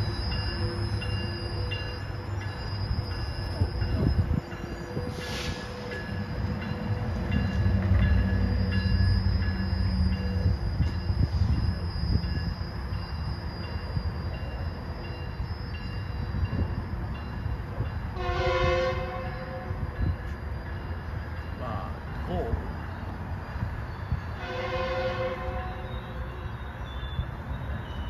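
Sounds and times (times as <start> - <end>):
distant diesel locomotive rumble: 0.0 - 28.0
train horn blast: 18.2 - 19.9, 24.4 - 26.5.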